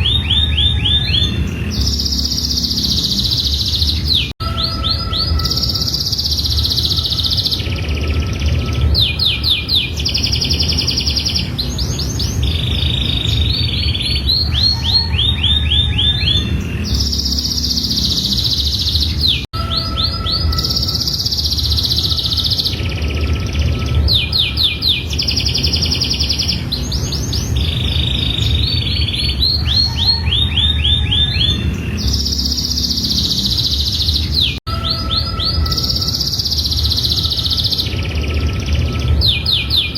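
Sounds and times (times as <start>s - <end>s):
canary singing trilled rolls: 0.0s - 39.9s.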